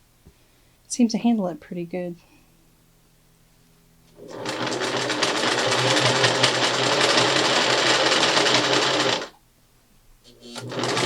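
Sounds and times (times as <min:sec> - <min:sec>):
sewing machine stitching: 0:04.2 - 0:09.4, 0:10.3 - 0:11.0.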